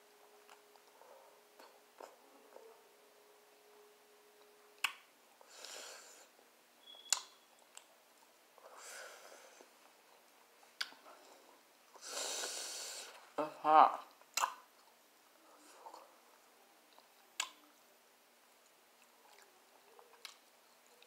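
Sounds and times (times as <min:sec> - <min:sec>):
sharp mouth clicks: 0:07.0 - 0:07.9, 0:14.3 - 0:14.6, 0:17.4 - 0:17.6.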